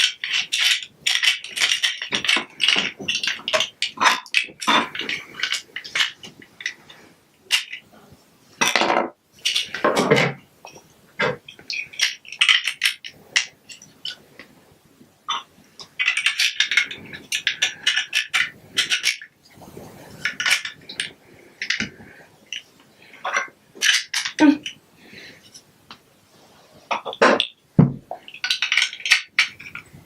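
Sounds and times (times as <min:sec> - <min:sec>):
plastic toy bricks clicking: 0:00.0 - 0:06.8, 0:11.2 - 0:14.2, 0:15.3 - 0:19.3, 0:23.2 - 0:24.8, 0:28.3 - 0:29.9.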